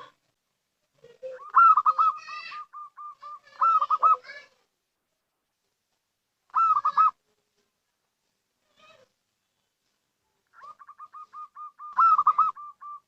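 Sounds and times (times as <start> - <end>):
dove cooing: 1.0 - 4.4, 6.5 - 7.2, 10.5 - 13.0.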